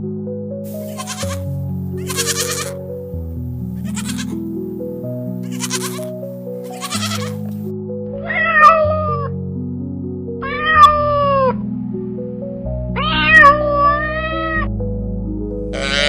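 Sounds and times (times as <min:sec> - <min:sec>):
background music: 0:00.0 - 0:16.0
cat meowing: 0:00.8 - 0:02.8, 0:03.8 - 0:04.4, 0:05.4 - 0:07.4, 0:08.2 - 0:09.3, 0:10.4 - 0:11.6, 0:13.0 - 0:14.7.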